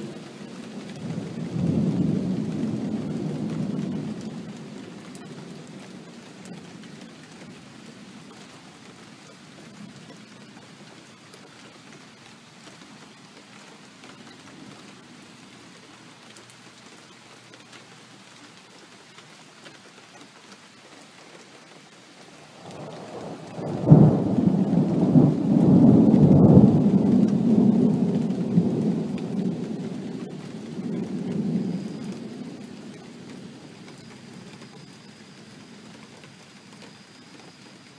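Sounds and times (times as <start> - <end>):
steady rain: 0.0 - 37.9
rolling thunderclap: 0.7 - 6.6, 22.5 - 34.9.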